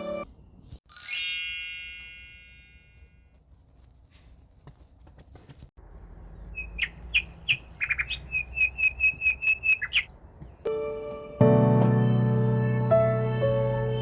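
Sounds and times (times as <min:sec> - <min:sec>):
music: 0:00.0 - 0:00.2, 0:10.7 - 0:14.0.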